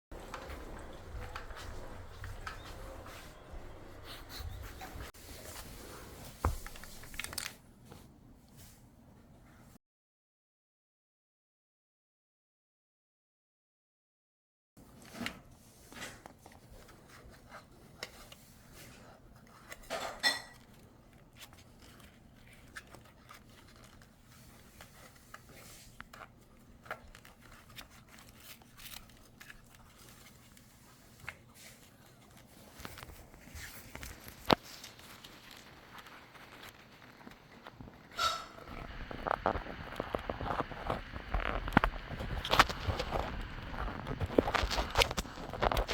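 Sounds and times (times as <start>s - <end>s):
plastic parts and tools handled: 5.4s - 7.7s, 15.0s - 45.9s.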